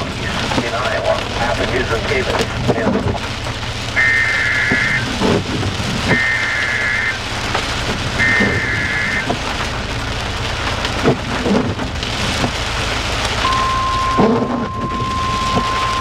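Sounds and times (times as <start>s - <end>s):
heavy rain drumming: 0.0s - 16.0s
single-pitch warning alarm tone: 4.0s - 5.0s, 6.1s - 7.2s, 8.2s - 9.3s, 13.4s - 16.0s
two-pitch warbling data bursts: 4.0s - 5.1s, 6.1s - 7.2s, 8.2s - 9.3s.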